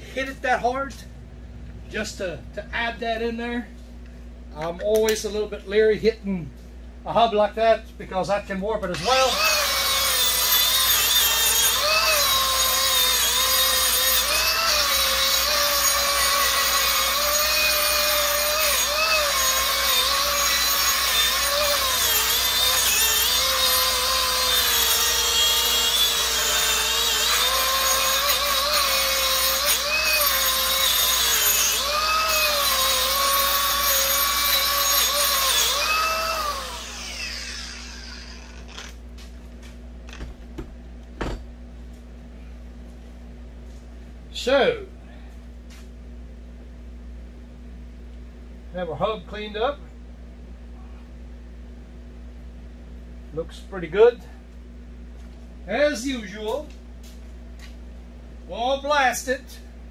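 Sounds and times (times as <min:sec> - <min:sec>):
power tool wire brush scrubbing metal: 0:09.0 - 0:38.8.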